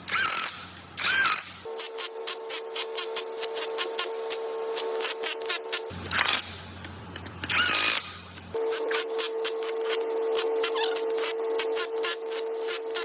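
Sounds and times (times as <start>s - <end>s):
mechanical hum: 0.0s - 13.0s
rapid sharp clicks: 0.0s - 13.0s.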